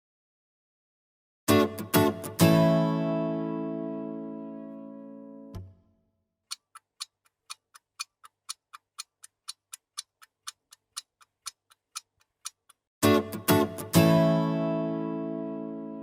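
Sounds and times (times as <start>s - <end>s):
click: 6.5s - 12.8s
mechanical clock ticking: 6.5s - 12.8s.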